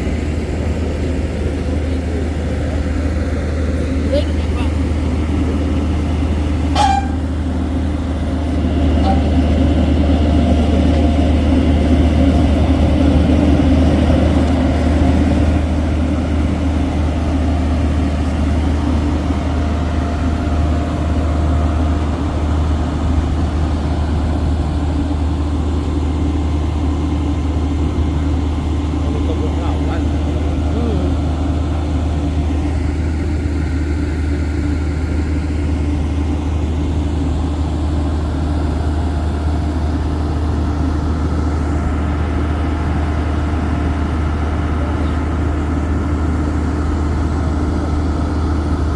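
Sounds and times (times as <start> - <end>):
heavy diesel engine drone: 0.0 - 48.9.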